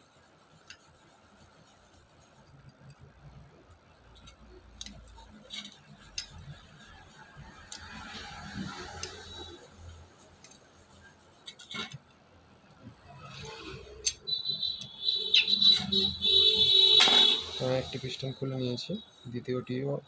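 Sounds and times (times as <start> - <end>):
high-pitched whistle: 14.0 - 19.0.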